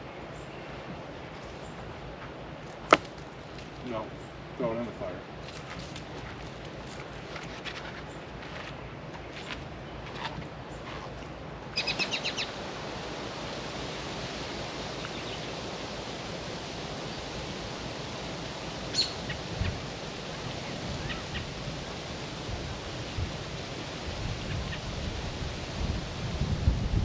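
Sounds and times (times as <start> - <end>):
outdoor background hiss: 0.0 - 27.0
bird chirping: 11.8 - 12.5, 18.9 - 19.4.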